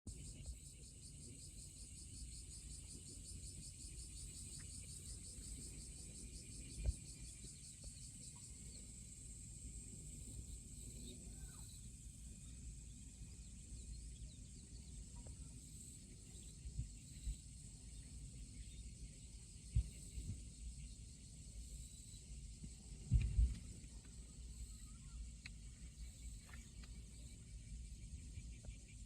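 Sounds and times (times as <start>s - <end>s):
insects trilling: 0.1s - 29.0s.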